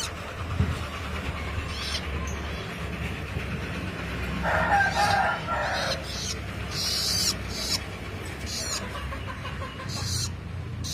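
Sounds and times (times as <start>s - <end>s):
nestlings hissy begging calls: 0.0s - 0.2s, 1.6s - 2.8s, 4.4s - 10.9s.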